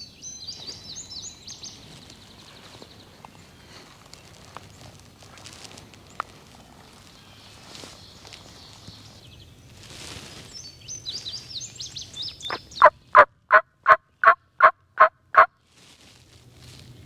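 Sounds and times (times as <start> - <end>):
turkey yelps: 12.5 - 15.5.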